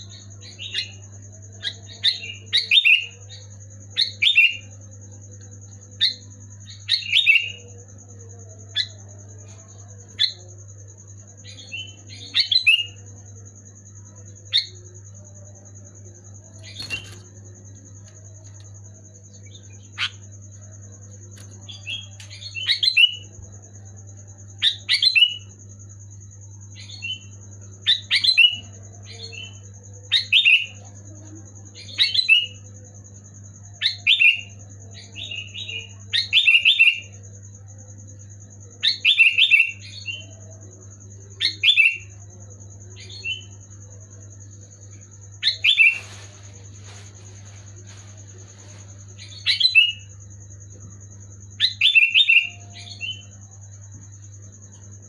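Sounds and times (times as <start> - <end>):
bird singing chirping phrases: 33.9 - 37.2, 51.5 - 53.4.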